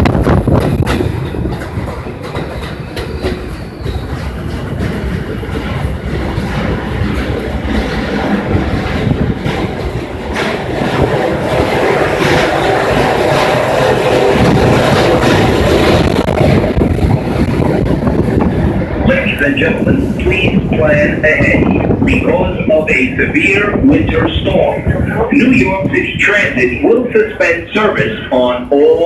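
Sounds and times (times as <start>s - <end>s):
subway wheels clacking: 0.0s - 29.0s
wheel squeal: 2.3s - 4.4s.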